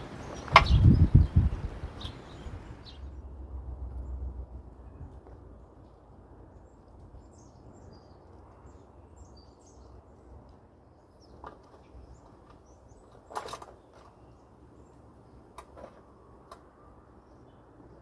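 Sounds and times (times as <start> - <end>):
high bird chirps: 0.0 - 3.0
wind: 0.0 - 18.0
sharp click: 0.4 - 0.9.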